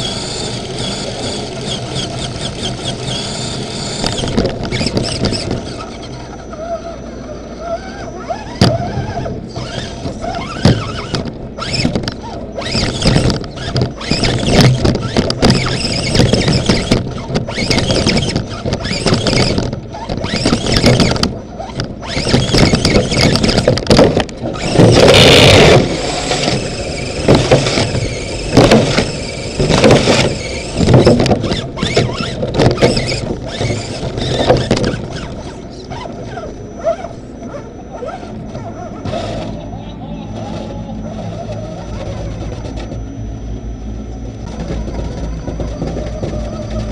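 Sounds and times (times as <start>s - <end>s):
electric motor and gears whining: 0.0s - 46.9s
knocks and rattles: 8.6s - 35.6s.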